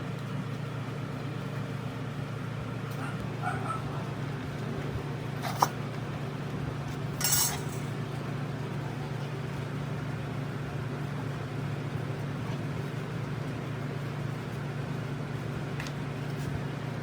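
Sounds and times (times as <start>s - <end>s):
low hum: 2.6s - 9.3s
small metal objects clinking: 7.2s - 7.9s.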